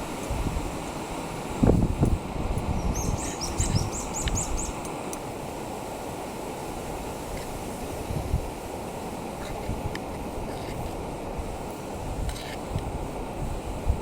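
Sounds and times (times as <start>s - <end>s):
wind buffeting microphone: 0.0s - 5.9s, 6.7s - 14.0s
small bird chirping: 2.8s - 4.8s.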